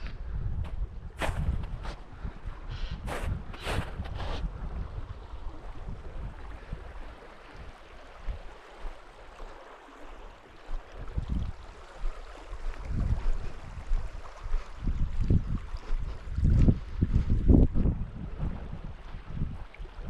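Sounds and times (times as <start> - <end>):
stream rushing: 5.4 - 15.0.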